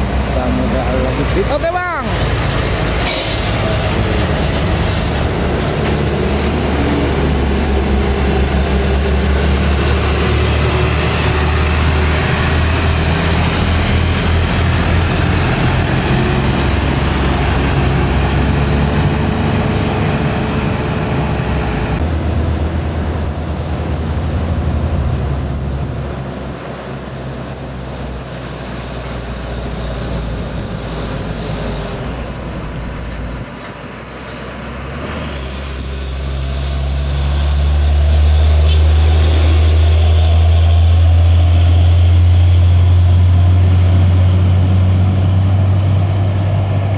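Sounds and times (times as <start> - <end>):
road noise: 0.0 - 46.9
truck diesel engine under load: 0.0 - 46.9.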